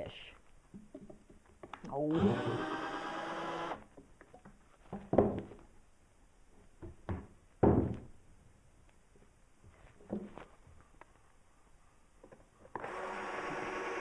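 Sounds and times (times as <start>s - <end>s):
hollow wooden knocks and thuds: 0.7s - 1.8s, 3.9s - 5.7s, 6.8s - 8.2s, 10.0s - 10.4s.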